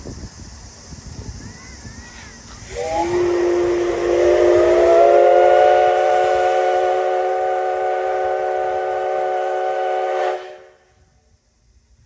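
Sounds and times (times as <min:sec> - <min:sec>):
steam locomotive whistle: 0:02.7 - 0:11.0.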